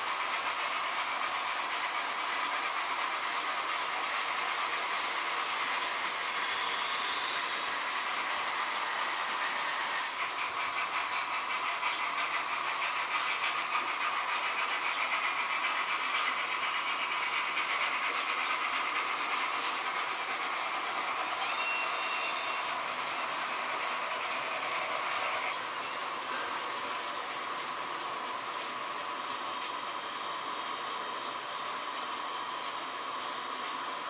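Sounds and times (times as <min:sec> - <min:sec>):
wheels clicking over rail joints: 0:00.0 - 0:32.2
model train motors whirring: 0:00.0 - 0:34.0
thin squeal: 0:21.3 - 0:22.9.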